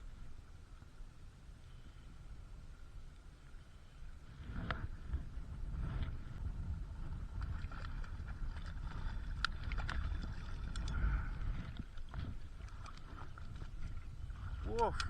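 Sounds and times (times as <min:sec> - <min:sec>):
wind rumbling on microphone: 0:00.0 - 0:15.0
sea water lapping: 0:07.0 - 0:15.0
light clicks and ticks: 0:14.8 - 0:15.0.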